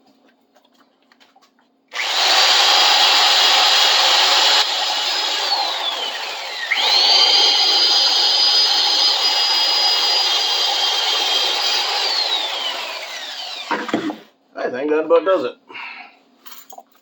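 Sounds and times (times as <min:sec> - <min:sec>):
electric drill with wire wheel: 0:01.9 - 0:14.2.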